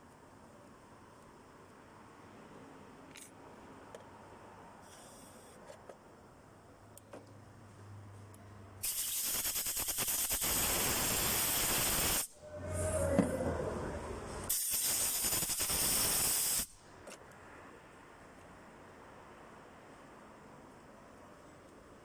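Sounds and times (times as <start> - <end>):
hard spray hissing: 8.8 - 12.4, 14.4 - 16.8.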